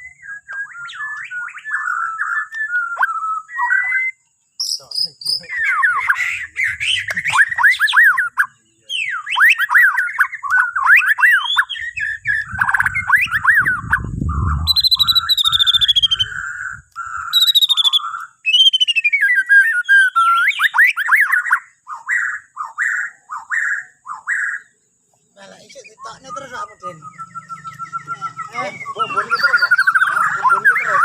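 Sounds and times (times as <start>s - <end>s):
bird singing whistles and trills: 0.0s - 31.0s
low rumble: 12.2s - 16.9s.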